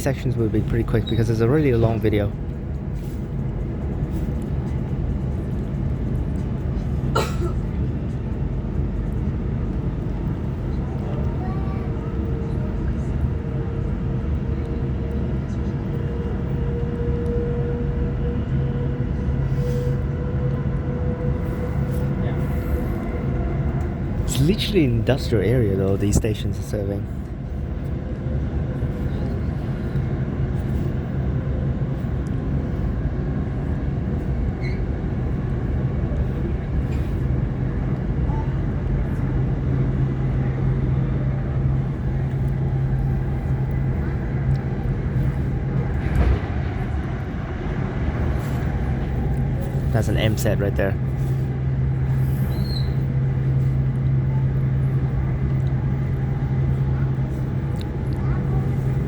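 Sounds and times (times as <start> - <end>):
train wheels rumbling on track: 0.0 - 59.0
low electric hum: 20.7 - 59.0.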